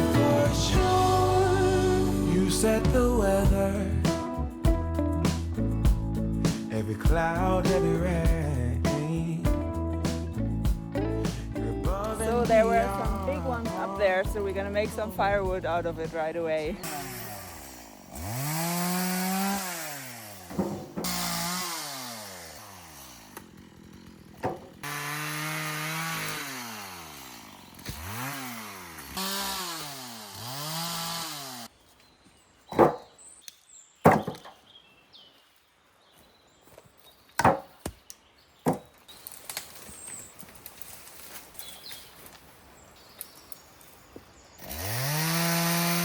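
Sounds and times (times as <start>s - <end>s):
chainsaw cutting wood: 0.0s - 4.4s, 11.3s - 15.9s, 16.6s - 31.7s, 44.6s - 46.0s
loud knocks of wood: 20.5s - 21.2s, 24.4s - 24.7s, 32.7s - 33.2s, 34.0s - 34.6s, 37.4s - 38.0s, 38.6s - 38.9s.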